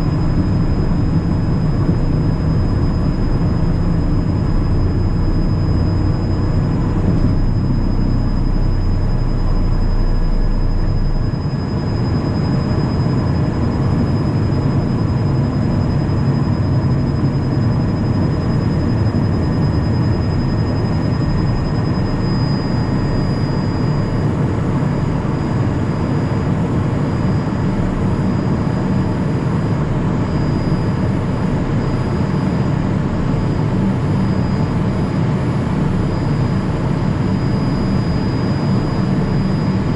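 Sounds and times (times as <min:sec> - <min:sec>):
jet cockpit rumble: 0:00.0 - 0:39.9
thin steady high whine: 0:00.0 - 0:39.9.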